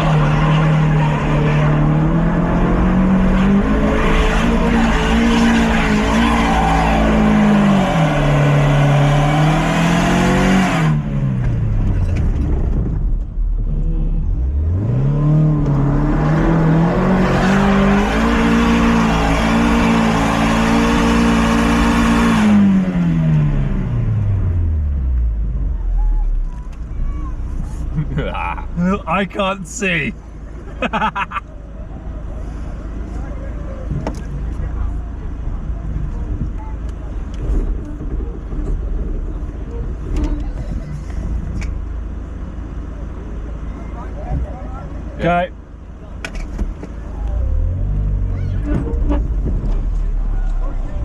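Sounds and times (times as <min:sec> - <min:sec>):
car engine at high revs: 0:00.0 - 0:26.8.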